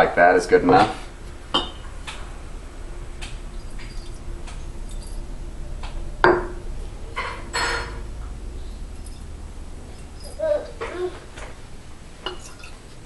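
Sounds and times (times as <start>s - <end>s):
clinks and knocks of bottles: 1.5s - 1.9s, 12.2s - 13.0s
rustling scrape: 3.2s - 6.1s.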